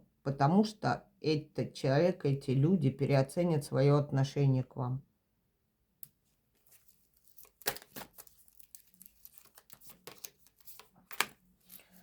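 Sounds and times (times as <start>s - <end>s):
cards flicking and rustling: 6.6s - 12.0s.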